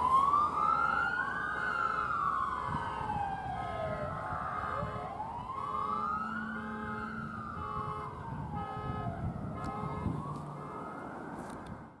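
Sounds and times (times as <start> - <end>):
electronic siren wailing: 0.0 - 11.0
horn blasts: 4.6 - 11.0.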